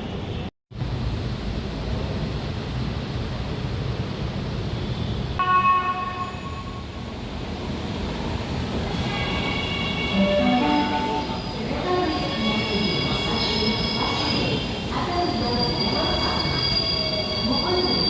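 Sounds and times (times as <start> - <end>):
train rumbling: 5.4 - 18.0
high multi-tone squeal: 8.9 - 18.0.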